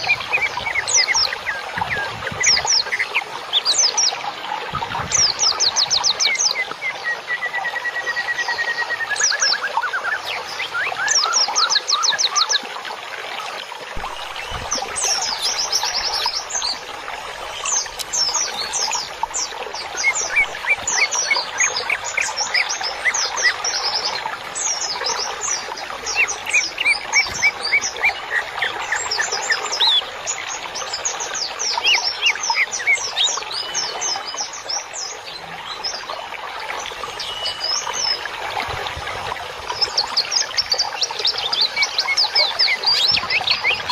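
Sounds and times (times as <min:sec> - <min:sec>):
songbirds chirping and twittering: 0:00.0 - 0:43.9.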